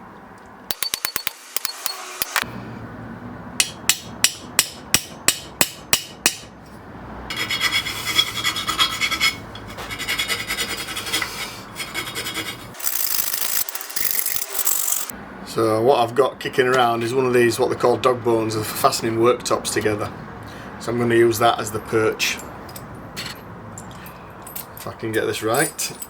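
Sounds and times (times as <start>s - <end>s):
sharp tool taps: 0.7s - 2.4s
rasping scraping: 7.3s - 15.1s.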